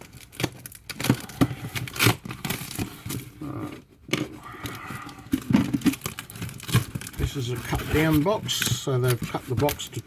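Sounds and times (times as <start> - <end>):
cardboard box being opened: 5.0 - 9.8.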